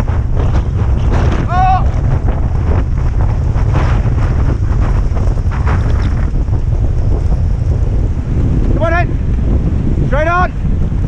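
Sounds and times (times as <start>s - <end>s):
rustling and scraping: 0.0s - 7.6s
wind buffeting microphone: 0.0s - 11.0s.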